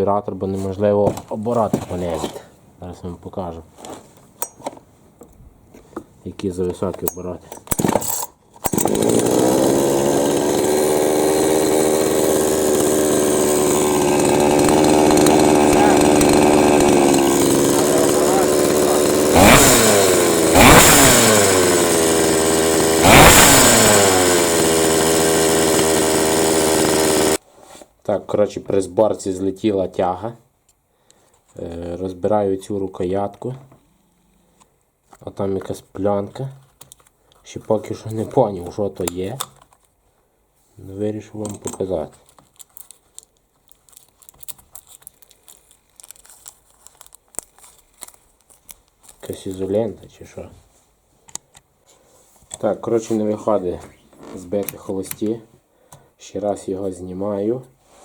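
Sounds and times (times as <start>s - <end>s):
chainsaw engine revving: 8.7s - 27.4s
hands clicking and crinkling: 41.4s - 49.7s.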